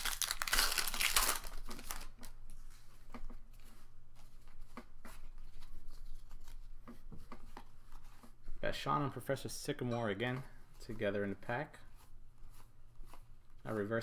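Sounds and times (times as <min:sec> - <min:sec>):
foil pack tearing open: 0:00.0 - 0:02.3
wrapper crinkling: 0:00.0 - 0:02.6.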